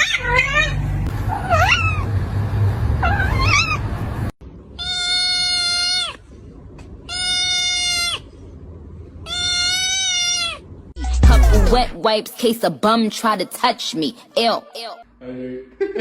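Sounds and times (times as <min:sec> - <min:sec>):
cat meowing: 0:00.0 - 0:02.0, 0:03.0 - 0:03.8, 0:04.8 - 0:06.2, 0:07.1 - 0:08.2, 0:09.2 - 0:10.6
low rumble: 0:11.0 - 0:12.0.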